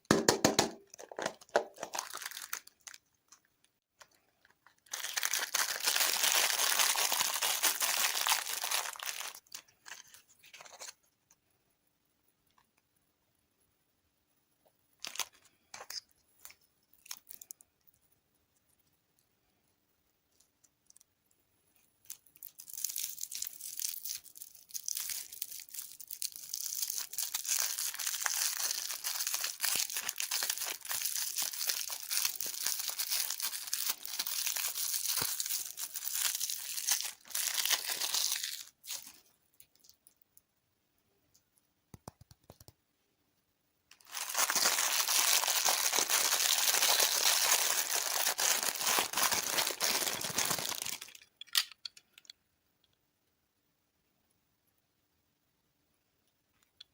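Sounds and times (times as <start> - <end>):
plastic wrapper crinkling: 0.6 - 11.0, 15.0 - 17.9, 22.0 - 40.2, 43.9 - 52.3.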